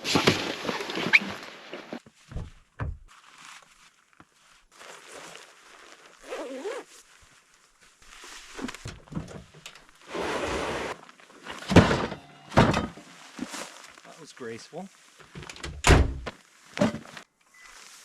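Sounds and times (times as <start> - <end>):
rustling and scuffing: 0.1 - 9.1, 12.9 - 15.4, 16.2 - 18.0.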